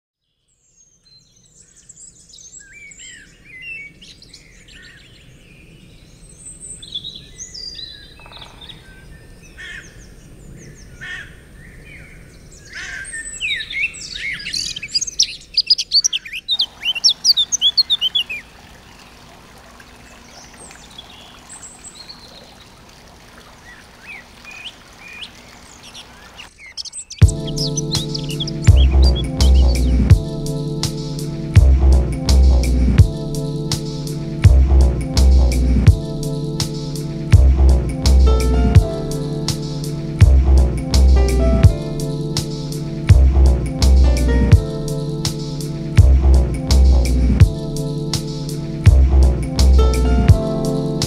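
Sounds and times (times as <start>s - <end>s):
small birds chirping and singing: 0.2s - 19.2s, 19.9s - 22.8s, 23.4s - 51.0s
rapid downward-sweeping chirps: 26.5s - 34.5s.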